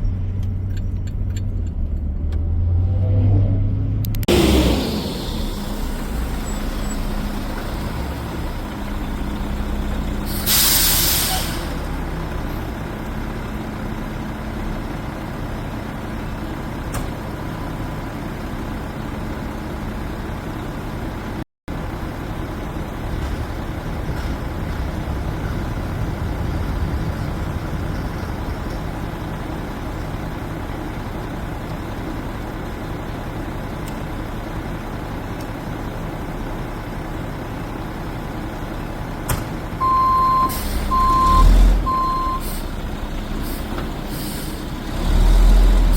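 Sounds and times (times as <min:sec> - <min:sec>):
garbage truck engine running: 0:04.2 - 0:45.9
truck reversing beeper: 0:04.3 - 0:09.2, 0:39.8 - 0:44.8.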